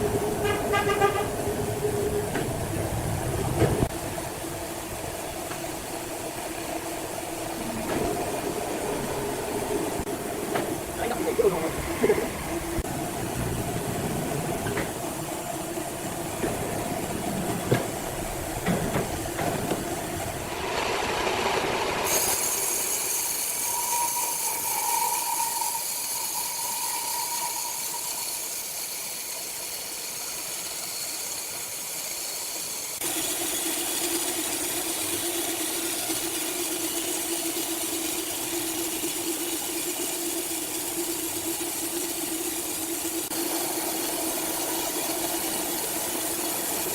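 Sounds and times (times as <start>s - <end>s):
sawmill machinery running: 0.0s - 46.9s.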